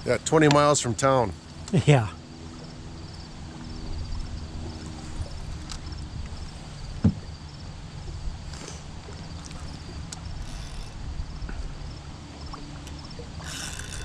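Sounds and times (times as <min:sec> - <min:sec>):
low steady rumble: 0:00.0 - 0:14.0
thump: 0:07.0 - 0:07.3.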